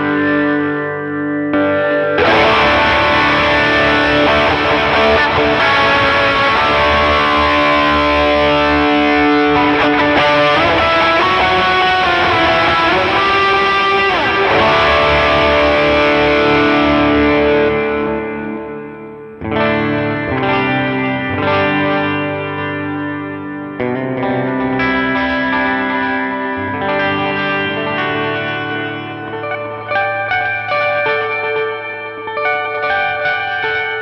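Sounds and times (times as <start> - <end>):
overdriven electric guitar: 0.0 - 34.0.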